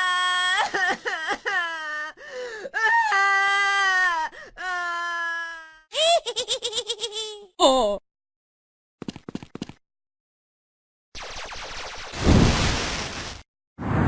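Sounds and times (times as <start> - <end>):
cartoon voice crying: 2.9 - 8.0
cartoon voice laughing: 5.9 - 8.0.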